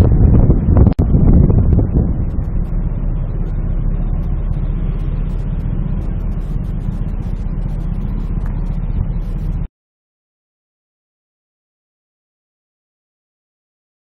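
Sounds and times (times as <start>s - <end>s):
moving car rumble: 0.0s - 9.7s.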